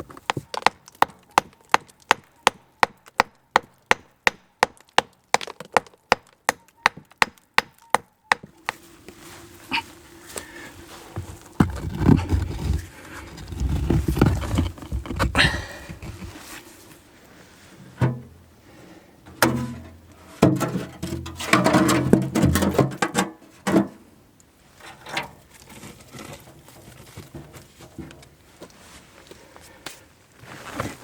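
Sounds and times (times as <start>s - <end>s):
stones knocking together: 0.0s - 8.8s, 10.4s - 16.4s
stones scraping and rustling: 8.4s - 17.6s, 24.7s - 31.0s.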